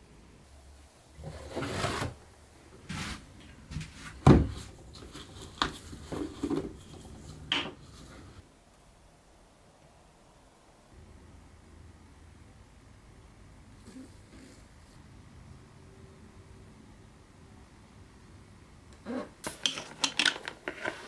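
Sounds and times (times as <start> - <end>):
scrape on a workbench: 1.2 - 2.2, 2.8 - 4.2.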